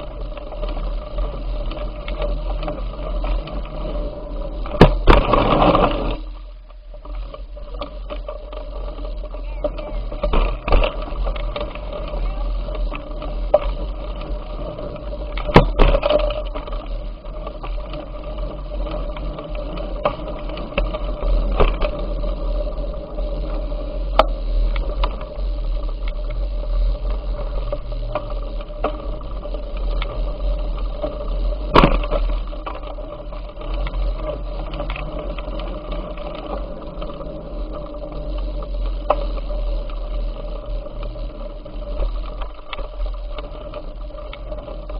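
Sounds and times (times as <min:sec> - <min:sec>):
bicycle riding rumble: 0:00.0 - 0:44.9.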